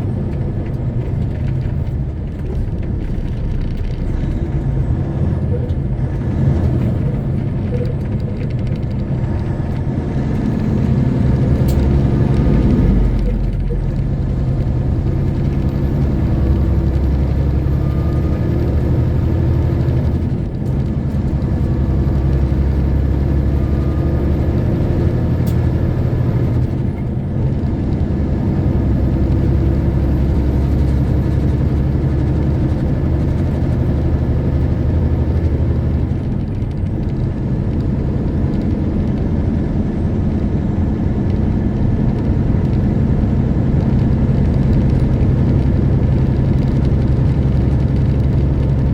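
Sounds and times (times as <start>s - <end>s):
truck diesel engine running: 0.0s - 48.9s
tyre and road noise: 0.0s - 48.9s.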